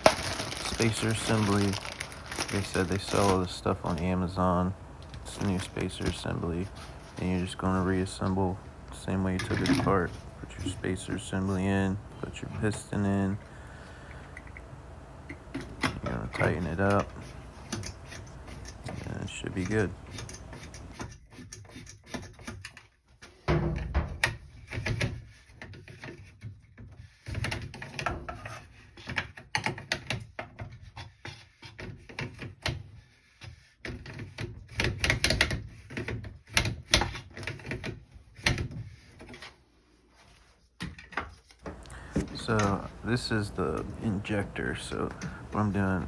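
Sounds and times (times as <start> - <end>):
plastic parts clicking and rattling: 0.0 - 4.4, 5.0 - 13.3.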